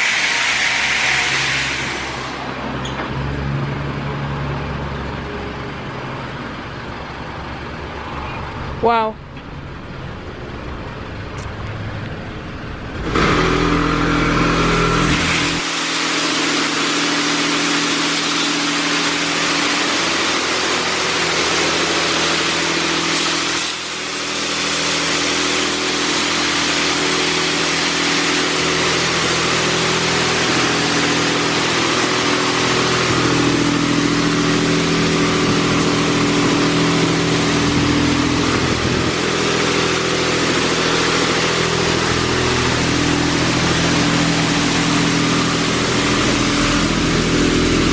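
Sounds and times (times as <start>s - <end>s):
high-pressure water spraying: 0.0s - 2.6s, 13.2s - 47.9s.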